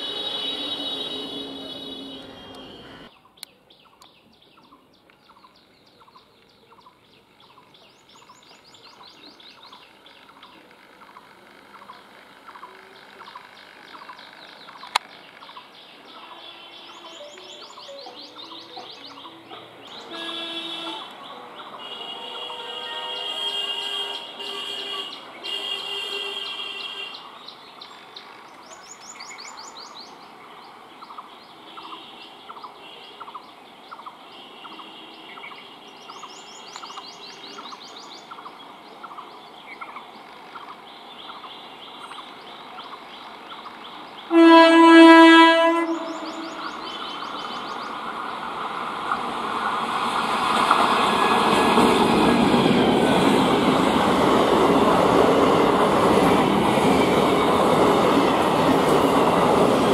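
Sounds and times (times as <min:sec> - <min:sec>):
train horn blast: 0:00.0 - 0:03.1, 0:18.4 - 0:27.2, 0:44.3 - 0:46.9
birds chirping: 0:00.0 - 0:59.9
train wheels rumbling and clattering: 0:48.0 - 0:59.9.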